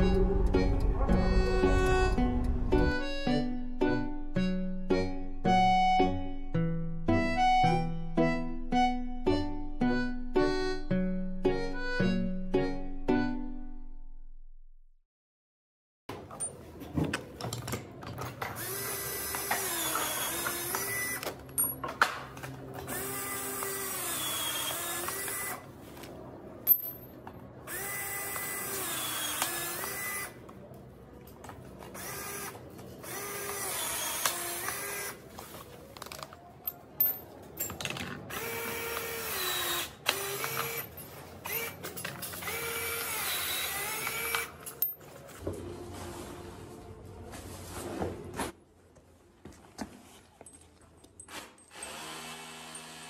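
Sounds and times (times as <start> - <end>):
power tool motor running: 18.6 - 21.2, 22.8 - 25.6, 27.7 - 30.4, 31.9 - 35.2, 38.3 - 41.7, 42.3 - 44.5, 51.7 - 53.0.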